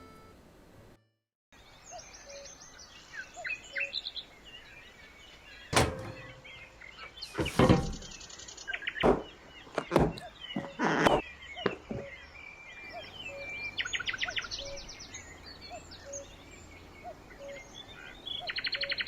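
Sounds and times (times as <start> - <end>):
small birds chirping: 1.6 - 19.0
sharp knocks: 5.8 - 6.7, 7.4 - 8.2
clatter: 7.3 - 8.2.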